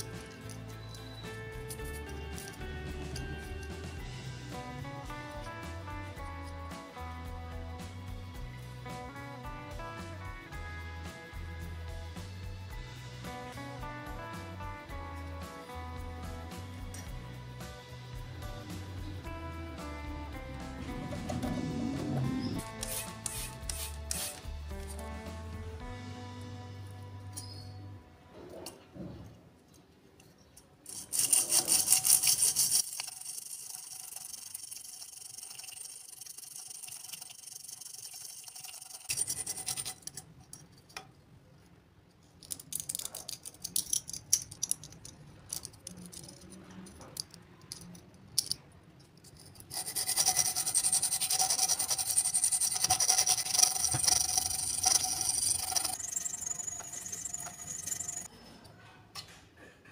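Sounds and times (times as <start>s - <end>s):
metal blade scraping on abrasive: 21.2s - 25.1s, 30.9s - 40.3s, 49.3s - 58.3s.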